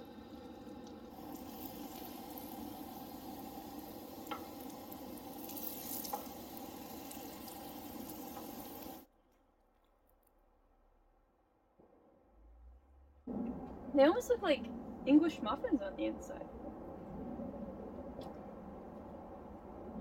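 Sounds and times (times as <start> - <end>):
dough sizzling in oil: 0.0 - 9.1.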